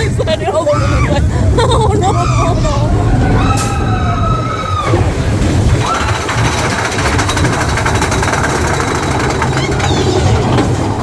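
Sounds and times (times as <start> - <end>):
rider whooping: 0.0 - 10.8
roller coaster rumbling on track: 0.0 - 11.0
person rising cry: 0.6 - 5.1.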